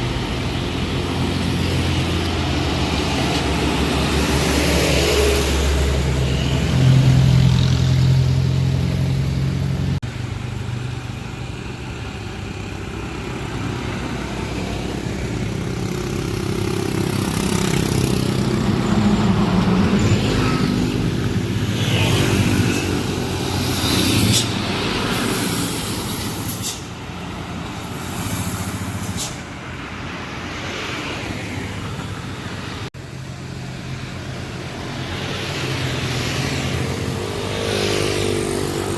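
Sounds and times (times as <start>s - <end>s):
diesel trucks labouring uphill: 0.0s - 38.9s
road traffic passing: 0.0s - 38.9s
short hisses: 25.2s - 27.0s, 28.0s - 29.5s.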